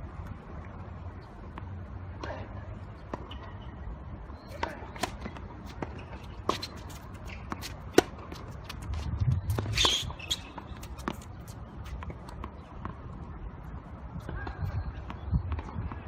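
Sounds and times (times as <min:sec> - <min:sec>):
sharp tennis ball crack: 0:04.5 - 0:08.9
shoes scuffing on court: 0:04.5 - 0:13.0
tennis ball bouncing: 0:04.5 - 0:13.0.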